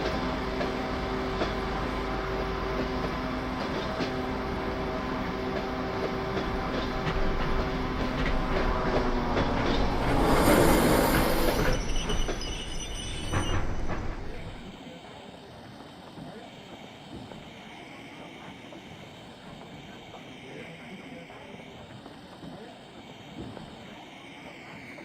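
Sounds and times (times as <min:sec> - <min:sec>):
diesel locomotive drone: 0:00.0 - 0:15.4
rushing hiss: 0:09.8 - 0:13.0.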